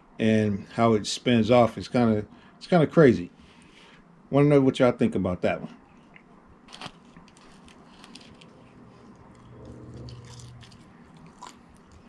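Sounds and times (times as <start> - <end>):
person chewing food: 5.8 - 12.0.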